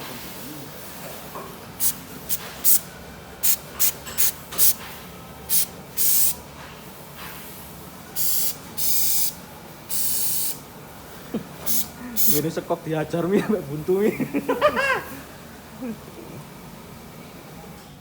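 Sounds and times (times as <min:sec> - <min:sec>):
spray paint hissing bursts: 0:01.8 - 0:04.8, 0:05.5 - 0:06.4, 0:08.2 - 0:10.6, 0:11.6 - 0:12.5.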